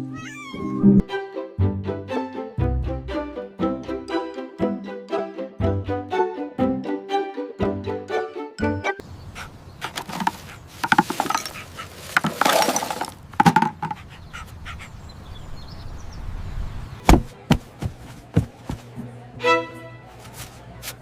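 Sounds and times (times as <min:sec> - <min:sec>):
knocks and clatter: 0:09.9 - 0:14.0
heavy thump: 0:17.1 - 0:18.9.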